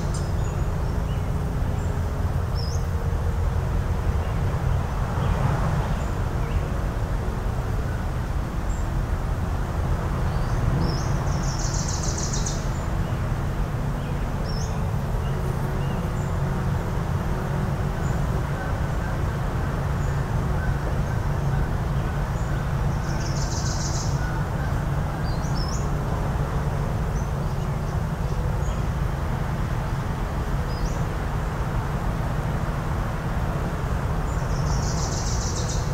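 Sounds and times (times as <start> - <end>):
distant motors: 0.0 - 35.9
buzzy high bird calls: 18.0 - 26.0.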